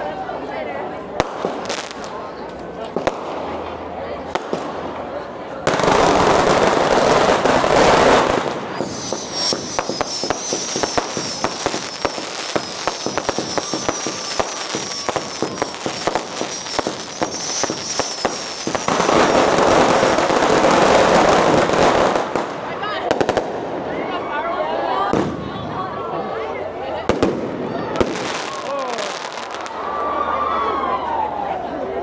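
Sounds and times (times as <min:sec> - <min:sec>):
firecrackers popping: 0:01.2 - 0:23.8, 0:27.0 - 0:29.8.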